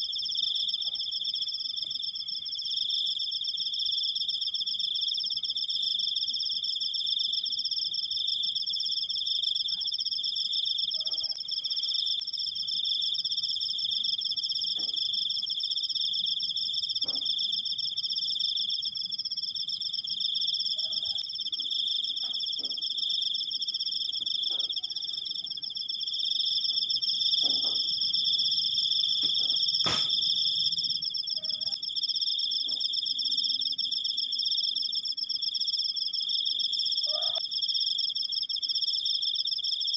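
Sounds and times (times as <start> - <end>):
crickets trilling: 0.0 - 39.9
sharp click: 29.2 - 30.2.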